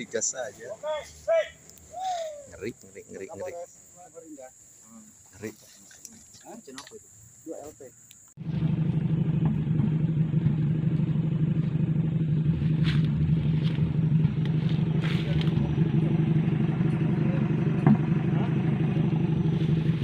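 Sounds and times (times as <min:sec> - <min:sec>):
engine running steadily: 0:08.4 - 0:20.0.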